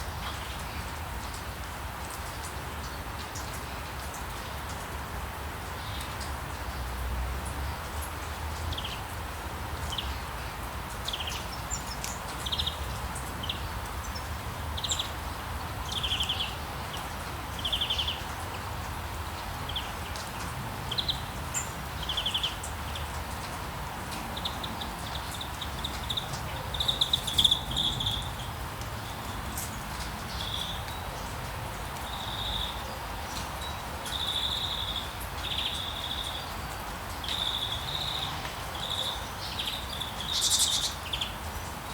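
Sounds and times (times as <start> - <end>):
birds chirping and trilling: 24.4 - 28.5, 37.3 - 41.4.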